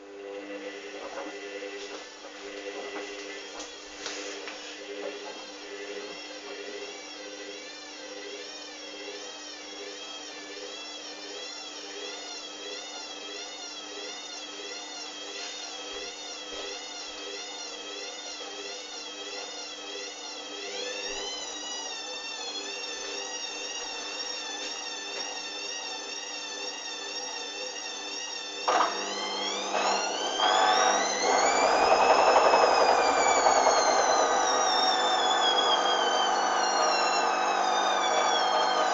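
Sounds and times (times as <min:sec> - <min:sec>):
washing machine motor whining: 0:00.0 - 0:38.9
washing machine motor humming: 0:28.7 - 0:38.9.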